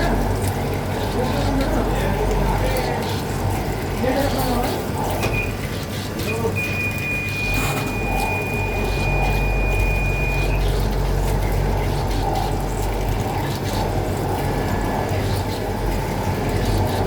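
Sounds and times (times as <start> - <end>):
low electrical hum: 6.2 - 17.0
thin high whine: 7.1 - 10.6.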